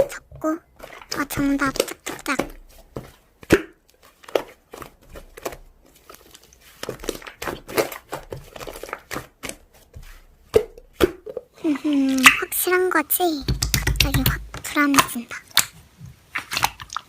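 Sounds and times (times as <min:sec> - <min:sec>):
slime squeezed crackling and popping: 0:13.5 - 0:17.0.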